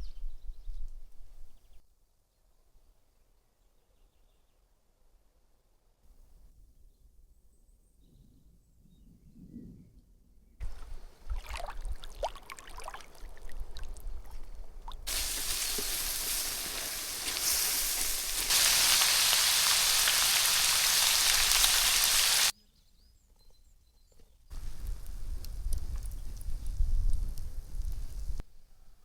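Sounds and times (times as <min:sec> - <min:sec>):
meat sizzling in a pan: 0:15.1 - 0:22.5.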